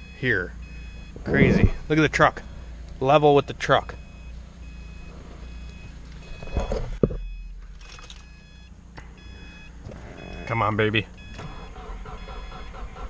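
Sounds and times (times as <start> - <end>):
car warning chime beeping: 0.0 - 2.5, 3.1 - 13.0
dull thump: 6.3 - 7.7.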